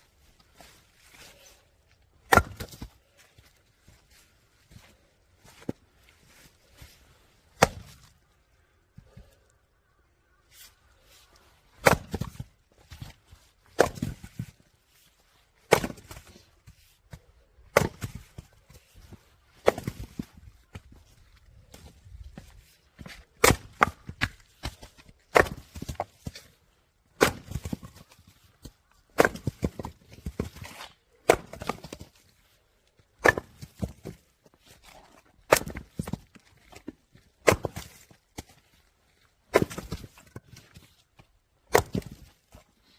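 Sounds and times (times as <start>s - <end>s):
firewood splitting blows: 0.4s - 3.6s, 6.4s - 8.2s, 11.6s - 14.9s, 15.6s - 42.9s
wood splitting cracks: 27.2s - 28.0s, 35.4s - 38.5s, 39.5s - 40.6s, 41.7s - 42.3s.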